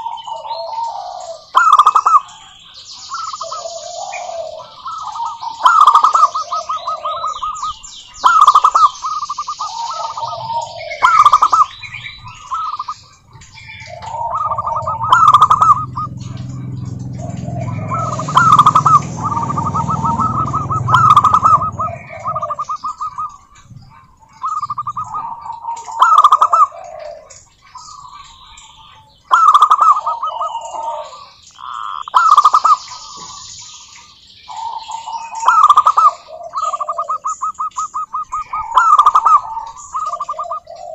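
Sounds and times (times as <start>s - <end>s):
doves cooing: 0.0s - 40.9s
small birds chirping: 0.0s - 40.9s
low rumble: 13.2s - 25.6s.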